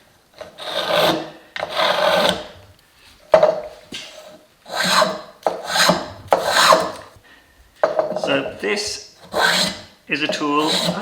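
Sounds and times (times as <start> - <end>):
spokeshave shaving wood: 4.7 - 7.1, 9.2 - 11.0.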